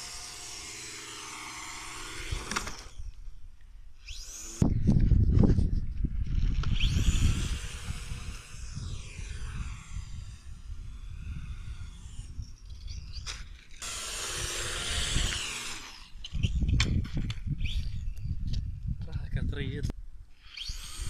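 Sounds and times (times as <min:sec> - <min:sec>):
model airplane motor whining: 0:00.0 - 0:05.3, 0:06.0 - 0:17.0, 0:20.4 - 0:21.0.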